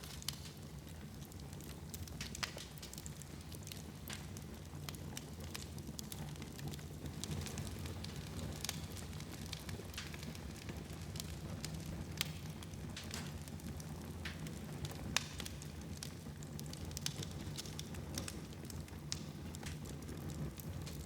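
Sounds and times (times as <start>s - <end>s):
fire crackling and popping: 0.0s - 21.0s.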